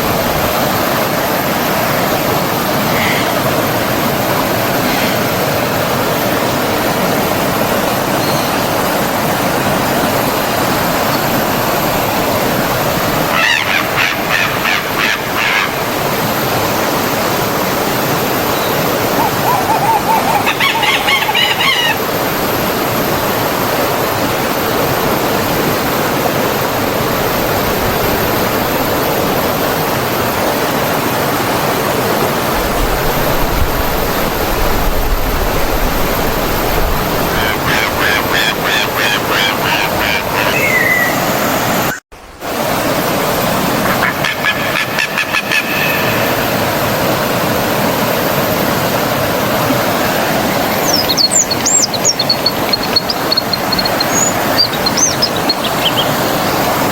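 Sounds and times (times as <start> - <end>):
stream rushing: 0.0 - 56.9
bird calling rapid notes: 13.3 - 15.8, 18.4 - 22.2, 37.2 - 42.0, 43.8 - 46.6, 50.6 - 56.9.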